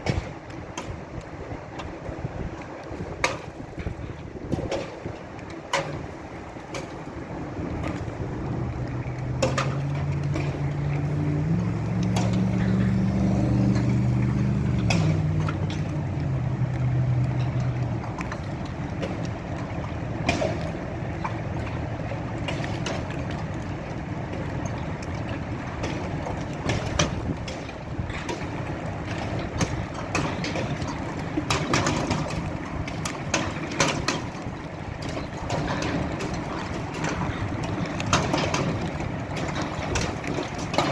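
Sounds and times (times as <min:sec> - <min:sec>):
vehicle engine running: 0:06.9 - 0:29.9.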